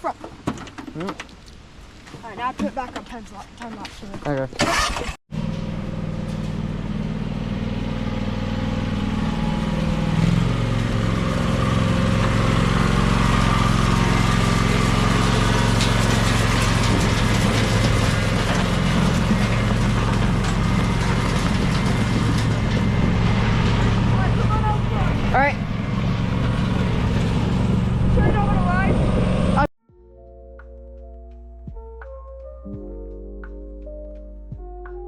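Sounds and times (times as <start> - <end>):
lawn tractor engine running: 4.6 - 29.7.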